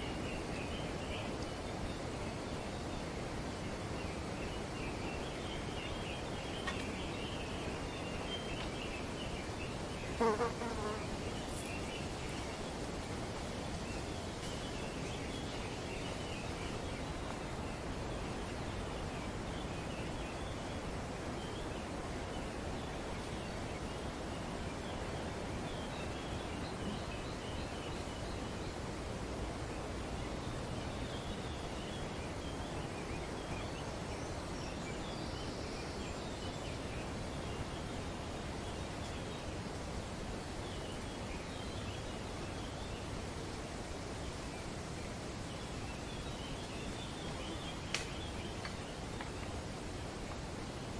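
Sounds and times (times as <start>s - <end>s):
wind rustling tree leaves: 0.0s - 50.9s.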